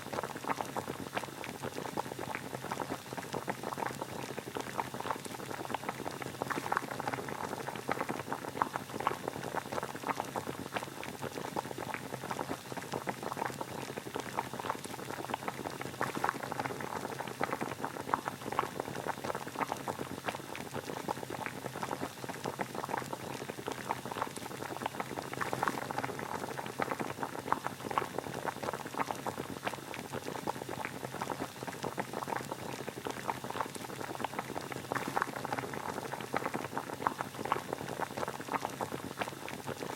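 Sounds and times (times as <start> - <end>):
water boiling and bubbling: 0.0 - 39.9.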